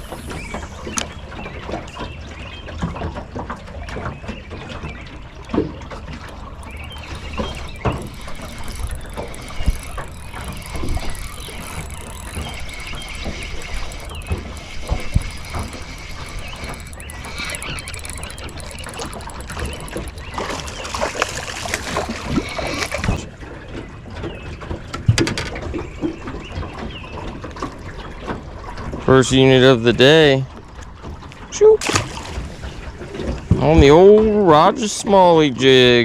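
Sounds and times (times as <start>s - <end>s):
fishing reel whine and ticking: 0.0s - 2.1s, 5.6s - 23.3s.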